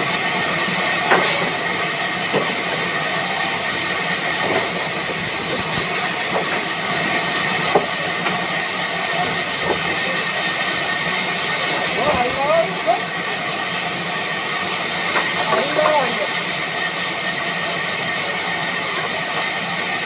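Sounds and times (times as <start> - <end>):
sawmill machinery running: 0.0 - 20.0.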